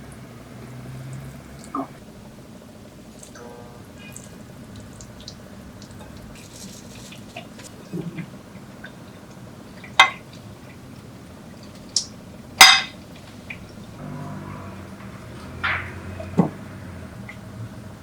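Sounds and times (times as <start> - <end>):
dishes and utensils clinking: 12.6 - 13.0, 14.0 - 16.8.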